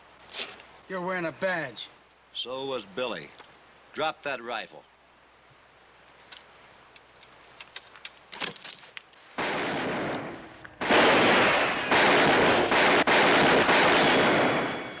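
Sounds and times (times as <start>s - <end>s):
gunfire volley: 9.4s - 15.0s.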